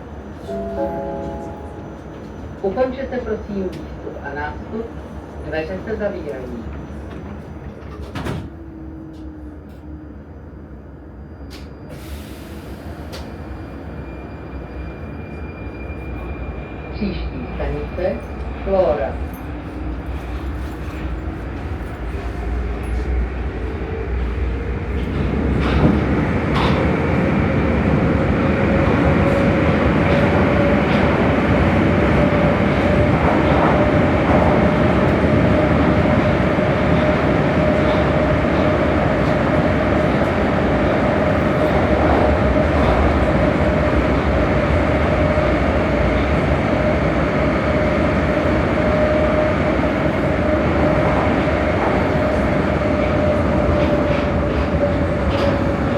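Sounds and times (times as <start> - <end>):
wheels rumbling on rail: 0.0 - 10.5, 11.3 - 55.9
metro train motor whine: 0.2 - 3.0.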